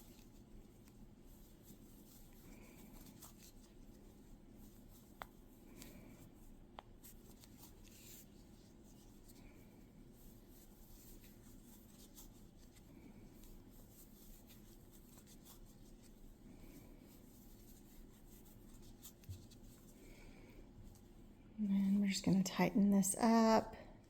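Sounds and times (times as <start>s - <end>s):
crochet hook rustling and ticking: 0.0s - 9.4s, 10.2s - 19.9s
low room hum: 0.0s - 24.0s.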